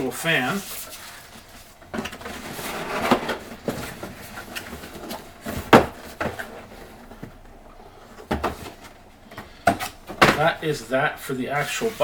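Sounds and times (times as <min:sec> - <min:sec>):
cardboard scraping and rustling: 0:00.4 - 0:10.6, 0:11.6 - 0:12.0.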